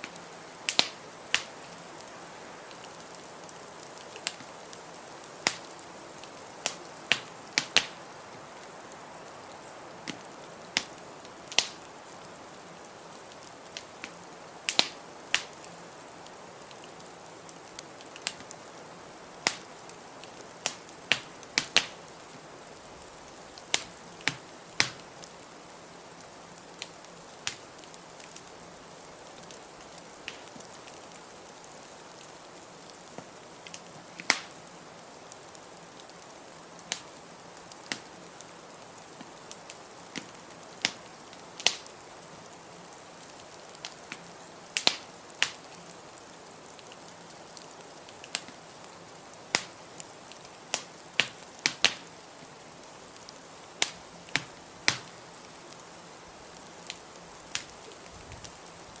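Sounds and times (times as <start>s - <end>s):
fire pops and snaps: 0.0s - 8.4s, 9.6s - 12.4s, 13.4s - 15.7s, 16.7s - 18.6s, 19.4s - 22.4s, 23.6s - 25.4s, 26.6s - 28.5s, 29.4s - 31.0s, 33.1s - 34.6s, 36.9s - 38.4s, 39.0s - 42.0s, 43.7s - 48.7s, 49.5s - 52.1s, 53.2s - 55.8s, 56.6s - 58.6s
steady hiss: 0.0s - 59.0s
wood fire crackling: 0.0s - 59.0s.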